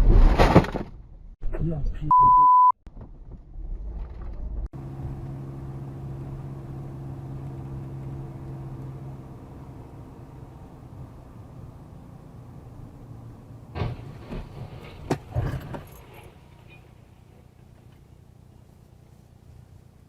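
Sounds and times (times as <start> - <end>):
vehicle low rumble: 2.9 - 20.0
vehicle running drone: 4.1 - 20.0.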